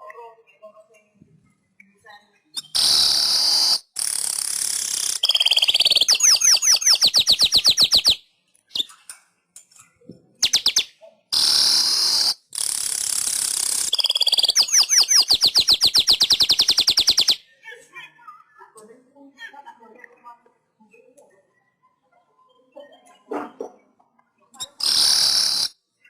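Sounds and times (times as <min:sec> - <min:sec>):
bird singing buzzy and ticking: 0:02.5 - 0:09.0, 0:10.4 - 0:17.5, 0:24.5 - 0:25.8.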